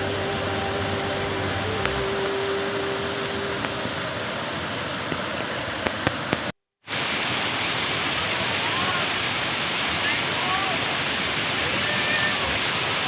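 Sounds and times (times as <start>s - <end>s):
steady tone: 0.0s - 5.1s
flowing water rushing: 0.0s - 13.0s.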